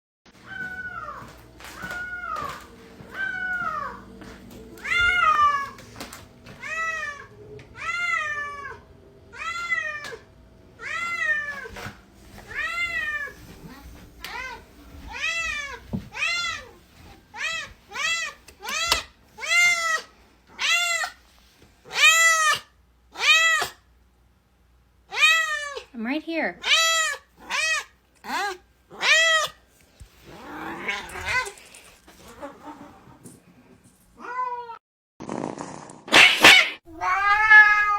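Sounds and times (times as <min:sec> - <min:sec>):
cat meowing: 0:00.4 - 0:04.0, 0:04.7 - 0:05.9, 0:06.6 - 0:10.2, 0:12.5 - 0:21.2, 0:26.6 - 0:29.6, 0:30.3 - 0:31.6, 0:36.4 - 0:37.9.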